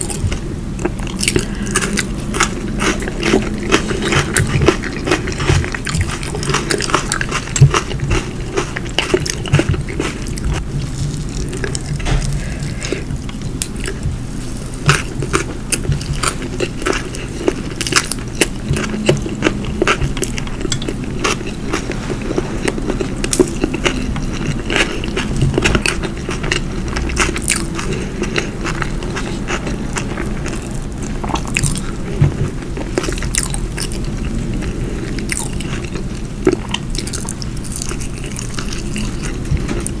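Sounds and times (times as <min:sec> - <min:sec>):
chewing soft food: 0:00.0 - 0:40.0.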